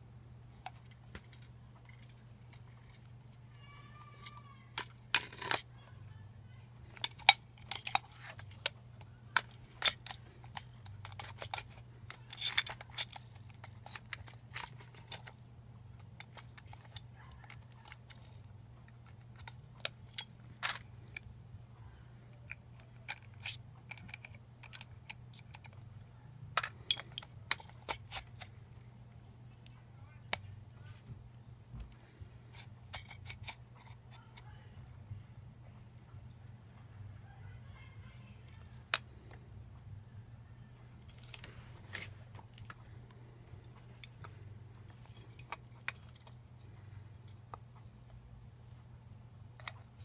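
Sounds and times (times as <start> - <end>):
low steady hum: 0.0 - 50.0
plastic parts clicking and clinking: 0.5 - 5.9, 6.9 - 21.3, 22.3 - 30.5, 31.2 - 34.9, 41.0 - 47.9, 49.5 - 50.0.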